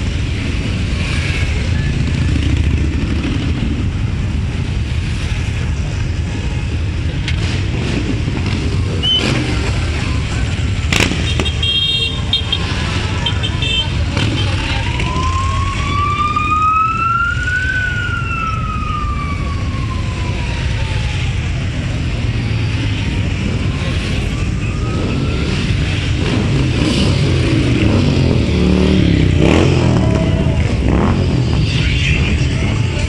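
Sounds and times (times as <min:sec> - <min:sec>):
motorcycle engines rumbling: 0:00.0 - 0:33.0
siren wailing: 0:14.5 - 0:26.3.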